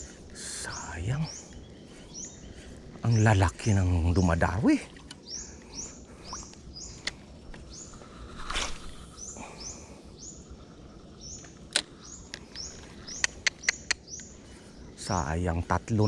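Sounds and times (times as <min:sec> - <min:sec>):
bird chirping: 0:00.0 - 0:16.0
low outdoor hum: 0:00.0 - 0:16.0
sharp clicks: 0:11.4 - 0:14.3.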